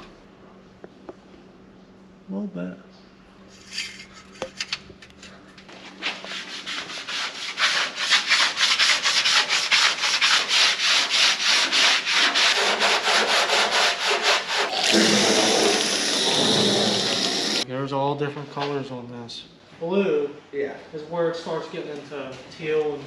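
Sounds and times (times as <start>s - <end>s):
scrubbing pad rubbing on metal: 6.0s - 14.7s
steady hiss: 14.7s - 17.6s.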